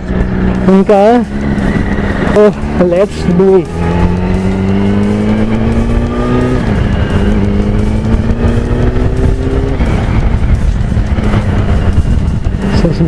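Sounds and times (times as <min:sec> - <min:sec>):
motorcycle engine accelerating: 0:00.0 - 0:13.0
wind rumble: 0:00.0 - 0:13.0.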